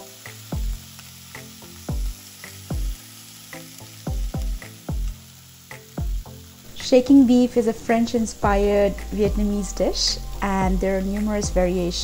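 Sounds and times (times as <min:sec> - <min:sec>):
meat sizzling in a skillet: 0:00.0 - 0:12.0
music with deep kick drum: 0:00.2 - 0:00.8, 0:01.4 - 0:03.0, 0:04.0 - 0:06.4, 0:08.4 - 0:12.0.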